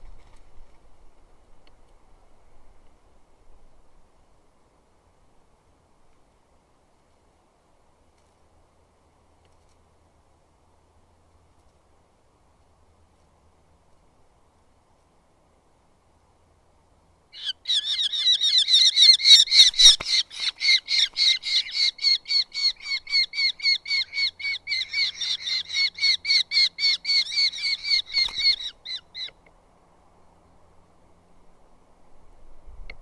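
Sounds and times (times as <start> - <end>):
bird calling sharp repeated notes: 17.4 - 29.4.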